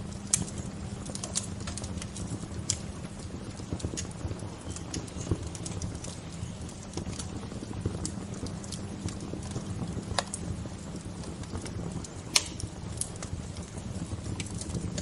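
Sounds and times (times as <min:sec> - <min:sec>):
low rumble of fire: 0:00.0 - 0:15.0
wood bonfire crackling: 0:00.0 - 0:15.0.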